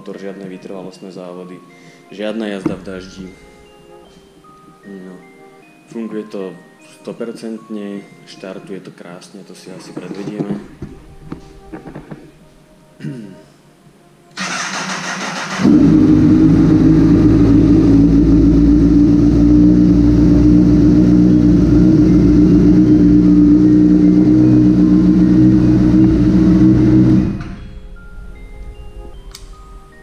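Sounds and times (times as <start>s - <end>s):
electric starter cranking: 14.4s - 27.7s
motorcycle engine idling: 15.4s - 27.4s.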